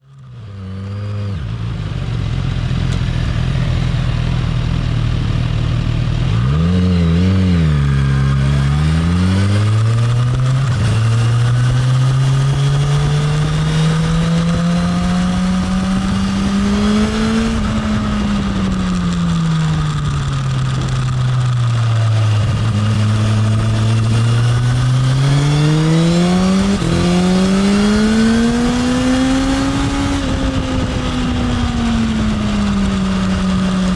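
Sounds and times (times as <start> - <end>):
motorcycle engine revving: 0.0 - 33.9
wind and road noise: 0.0 - 33.9.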